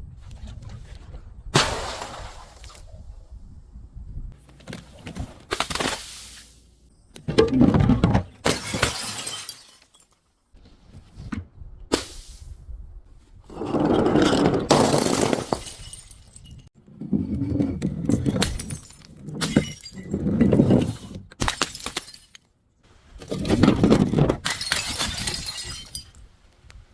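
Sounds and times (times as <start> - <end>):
glass bottles shattering: 7.5 - 10.2, 14.7 - 16.7, 18.1 - 22.5, 24.4 - 26.2.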